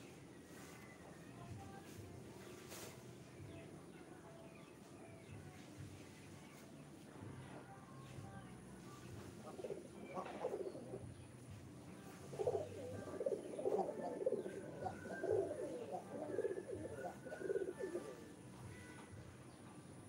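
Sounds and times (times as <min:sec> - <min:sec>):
pigeons cooing: 0:09.3 - 0:11.2, 0:12.0 - 0:18.4.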